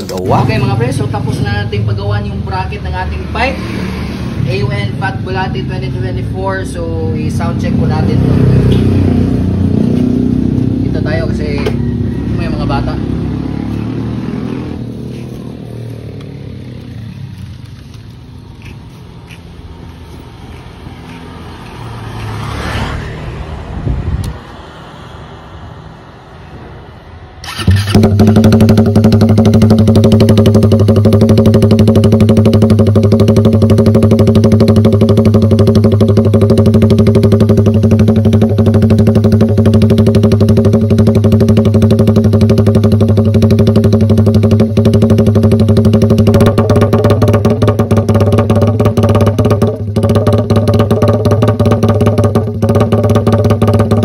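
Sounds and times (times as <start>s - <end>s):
motorcycle engine starting and idling: 0.0s - 20.2s, 27.4s - 54.0s.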